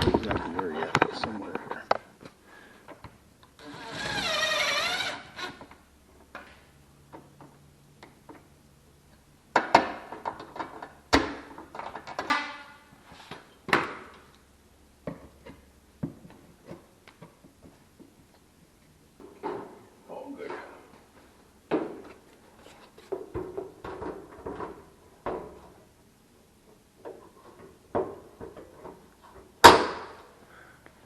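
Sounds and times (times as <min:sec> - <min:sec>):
power drill whining: 0:03.6 - 0:05.7.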